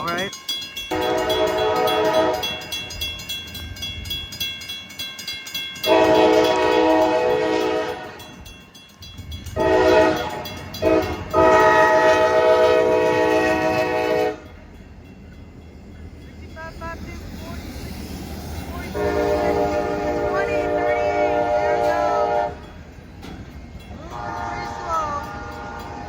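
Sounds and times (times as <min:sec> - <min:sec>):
passing train: 0:00.0 - 0:26.0
locomotive air horn blasts: 0:00.9 - 0:02.7, 0:05.9 - 0:08.3, 0:09.6 - 0:14.5, 0:18.9 - 0:22.7, 0:24.1 - 0:26.0.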